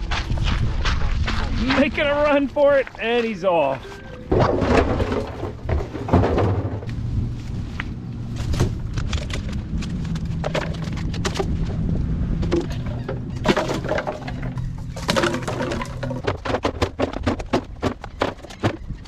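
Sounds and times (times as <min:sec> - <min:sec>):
steady low hum: 0:00.0 - 0:17.0
plastic trash dropped into barrel: 0:04.1 - 0:06.9, 0:12.6 - 0:18.8.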